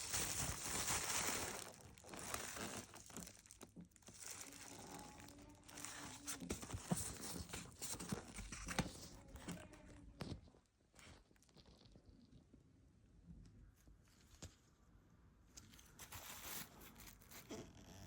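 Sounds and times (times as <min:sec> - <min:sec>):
packaging crinkling and rustling: 0:00.0 - 0:10.4.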